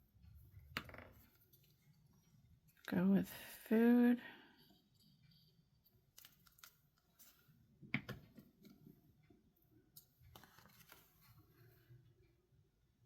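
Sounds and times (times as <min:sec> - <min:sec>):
paper pages handled: 0:06.2 - 0:07.5, 0:10.2 - 0:11.4.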